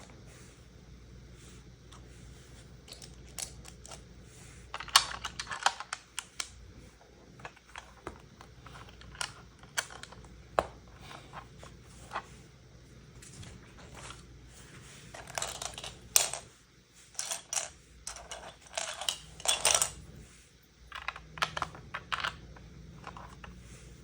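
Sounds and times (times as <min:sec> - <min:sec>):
plastic toy bricks clicking: 0:04.8 - 0:06.6, 0:20.9 - 0:22.4.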